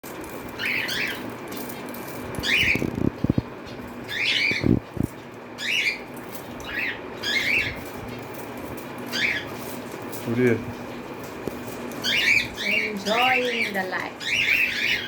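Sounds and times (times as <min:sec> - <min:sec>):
cockatiel chirping: 0:04.1 - 0:04.8, 0:05.6 - 0:07.9, 0:09.1 - 0:09.7, 0:12.0 - 0:15.0.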